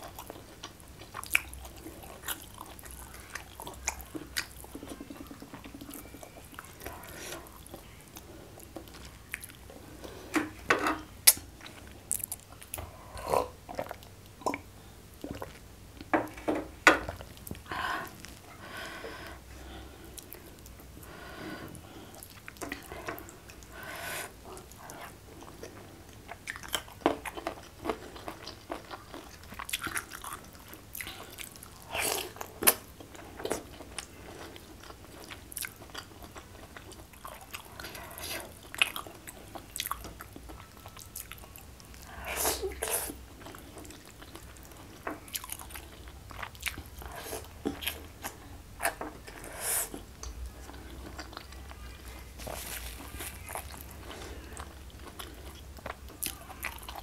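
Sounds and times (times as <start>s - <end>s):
chewing and mouth clicks: 0.0s - 9.7s, 24.6s - 42.1s, 42.7s - 57.0s.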